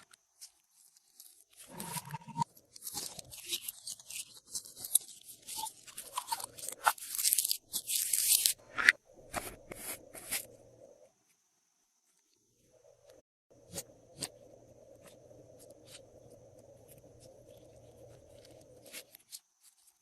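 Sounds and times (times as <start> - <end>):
crunchy crackling and sticky clicks: 0.0 - 8.7, 13.7 - 20.0.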